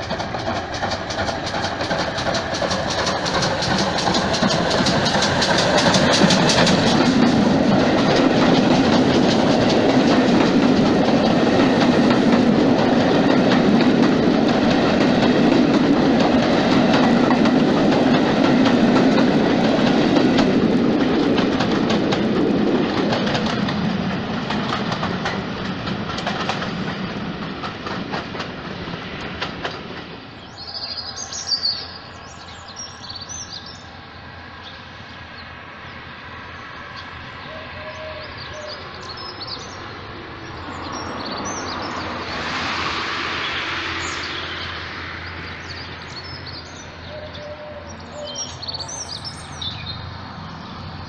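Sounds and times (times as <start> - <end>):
wheels clicking over rail joints: 0.0 - 28.6
train coaches rolling past: 0.0 - 51.0
bird chirping: 30.4 - 33.9, 36.5 - 42.2, 43.4 - 51.0.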